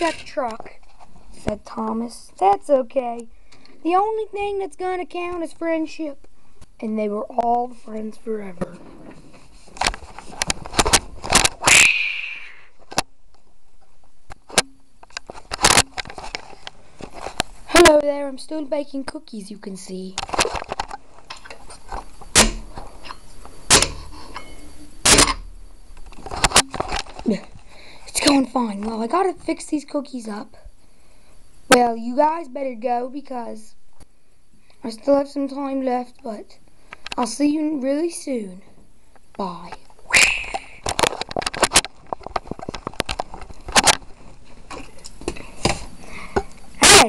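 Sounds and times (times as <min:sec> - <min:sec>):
sharp knocks: 0:22.3 - 0:22.8, 0:23.7 - 0:24.2, 0:25.0 - 0:25.5.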